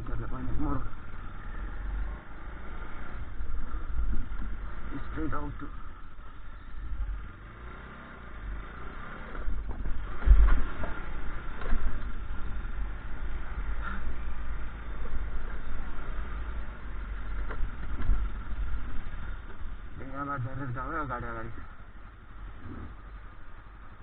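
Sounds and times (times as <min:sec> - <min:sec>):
vehicle rumbling on rough road: 0:00.0 - 0:24.0.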